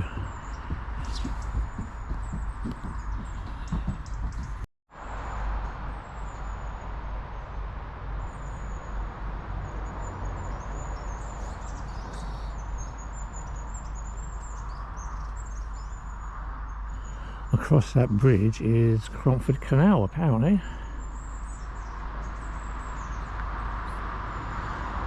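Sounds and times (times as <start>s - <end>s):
small birds chirping: 0.0s - 4.7s, 9.7s - 25.0s
outdoor background rumble: 0.0s - 25.0s.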